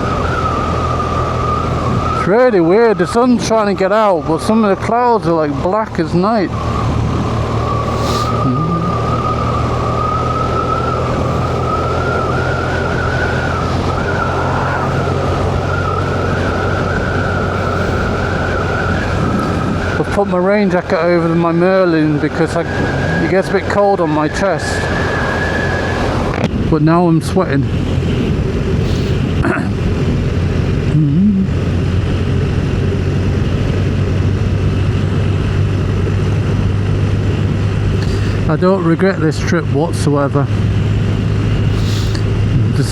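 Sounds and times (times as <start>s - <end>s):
wavering whine rising in pitch: 0.0s - 29.1s
motorcycle engine drone: 0.0s - 42.9s
wind and road noise: 0.0s - 42.9s.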